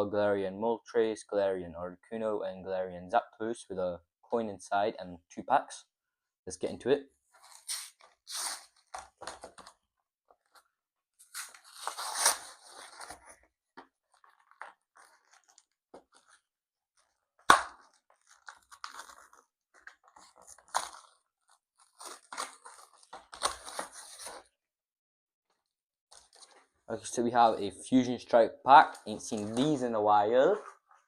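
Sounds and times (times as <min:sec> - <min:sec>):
packaging tearing and crinkling: 0:11.3 - 0:13.3, 0:17.8 - 0:24.4.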